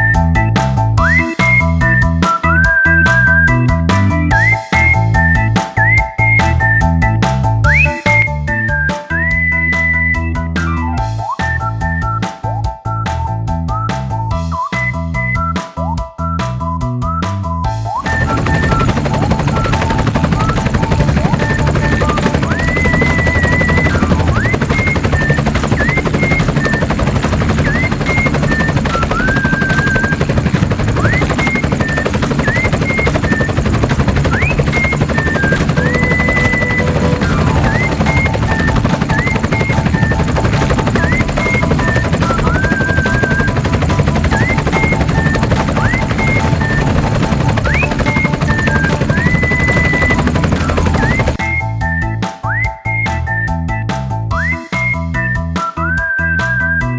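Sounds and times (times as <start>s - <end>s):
helicopter rotor chop: 18.0s - 52.0s.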